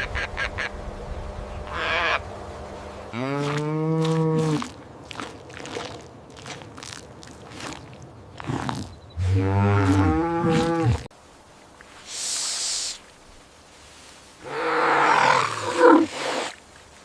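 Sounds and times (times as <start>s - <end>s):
cow mooing: 1.7s - 2.2s, 3.1s - 4.8s, 9.2s - 11.1s
short hiss: 12.0s - 13.2s.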